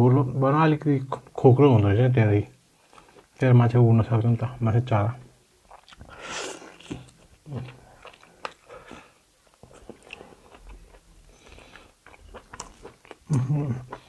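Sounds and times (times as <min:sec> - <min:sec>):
person chewing meat on bone: 0:05.6 - 0:14.0.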